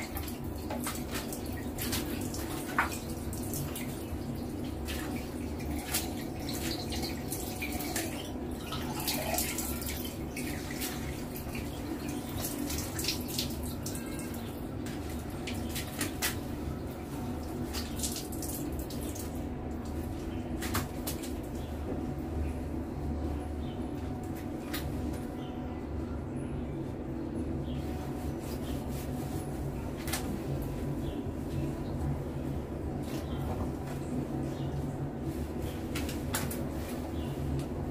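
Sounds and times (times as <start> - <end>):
small splashes and drips: 0.0 - 21.8.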